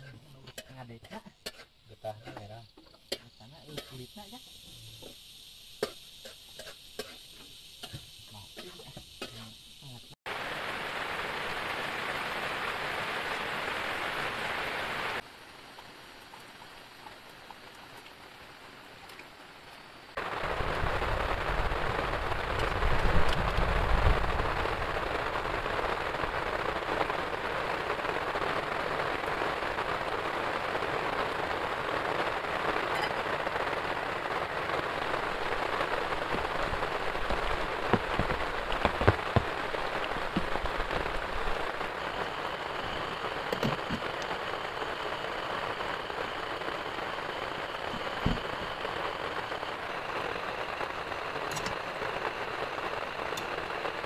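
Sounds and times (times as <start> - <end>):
sharp drip-like ticks: 0.5 - 9.9, 15.6 - 19.8
heavy rain pouring: 7.3 - 54.0.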